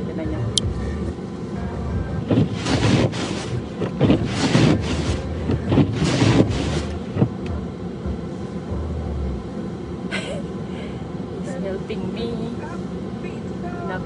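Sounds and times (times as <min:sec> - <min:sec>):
steady low rumble: 0:00.0 - 0:14.0
snow shovel scraping snow: 0:02.3 - 0:07.2.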